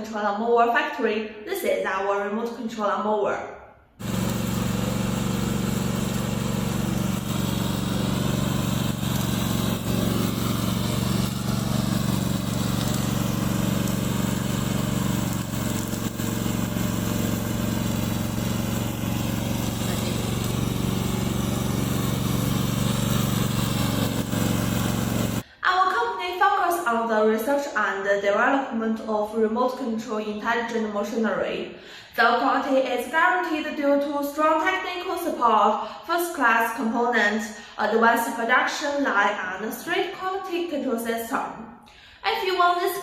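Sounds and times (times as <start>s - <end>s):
lawn mower engine running: 4.0s - 25.4s.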